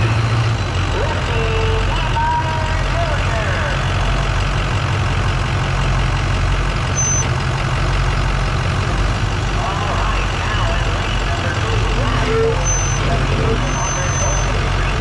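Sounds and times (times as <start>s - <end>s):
faint voices: 0.0s - 4.4s, 9.4s - 15.0s
truck engine idling: 0.0s - 15.0s.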